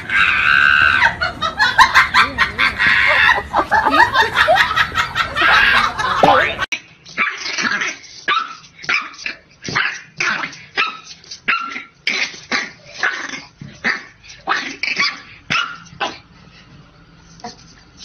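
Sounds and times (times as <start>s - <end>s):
dog barking: 14.5s - 16.2s.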